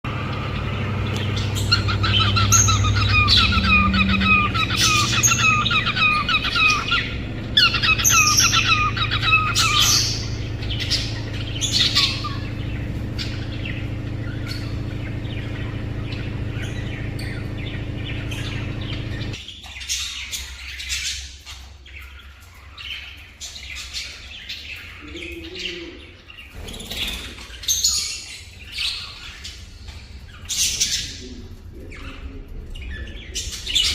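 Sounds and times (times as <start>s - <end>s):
steady low hum: 0.0s - 33.9s
cockatiel whistling and chirping: 1.5s - 12.5s.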